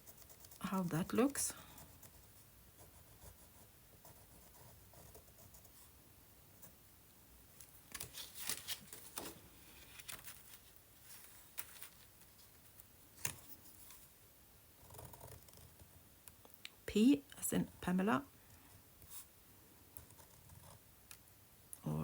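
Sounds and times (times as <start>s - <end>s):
paper rustling and scraping: 7.6s - 14.1s.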